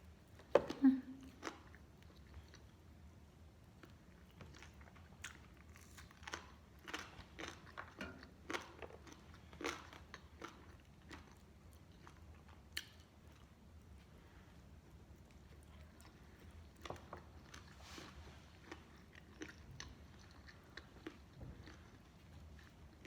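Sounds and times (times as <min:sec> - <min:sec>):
crunchy bites and chewing: 0:04.4 - 0:12.2.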